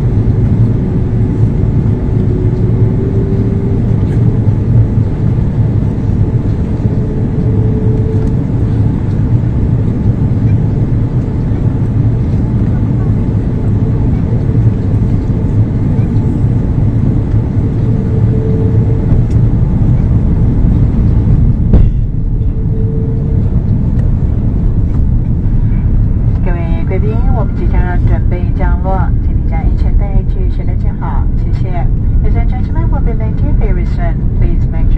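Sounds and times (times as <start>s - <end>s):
airliner cabin engine rumble: 0.0s - 34.9s
rushing air: 13.4s - 26.5s.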